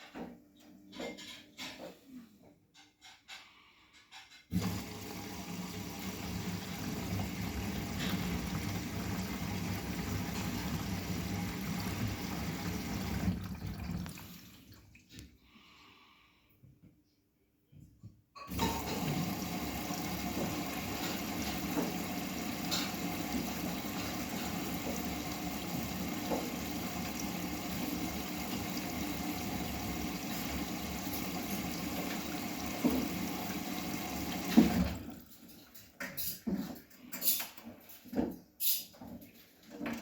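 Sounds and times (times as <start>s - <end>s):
water flowing into washing machine: 4.5s - 15.2s, 18.5s - 36.6s
washing machine clicks and knocks: 6.8s - 14.1s, 18.5s - 35.1s.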